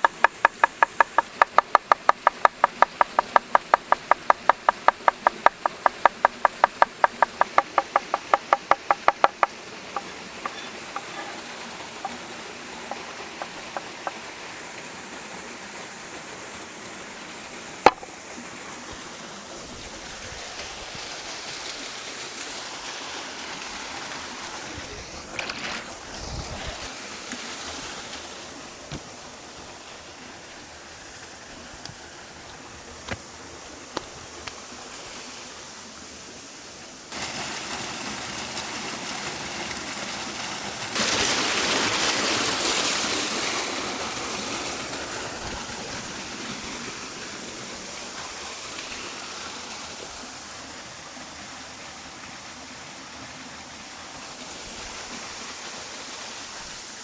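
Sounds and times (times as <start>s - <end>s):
scattered taps: 0.0s - 14.3s, 17.9s - 18.1s
knife chopping on cutting board: 17.9s - 18.1s
sharp knock: 17.9s - 18.1s.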